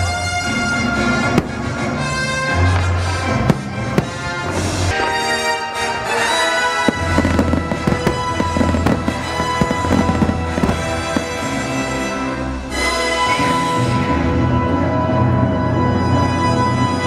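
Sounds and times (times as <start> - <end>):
loud show music: 0.1 - 14.5
fireworks bursting and crackling: 0.8 - 5.1, 5.8 - 12.9.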